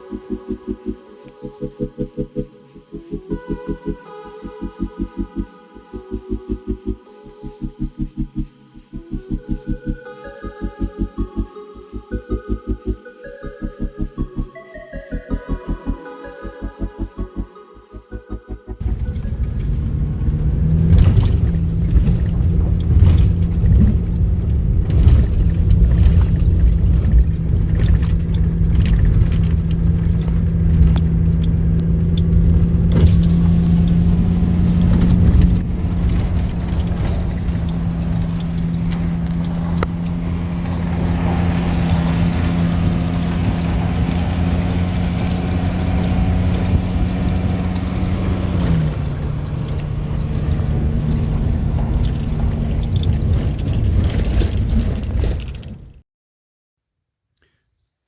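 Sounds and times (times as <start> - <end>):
low road rumble: 18.8 - 56.0
truck engine running: 18.8 - 56.0.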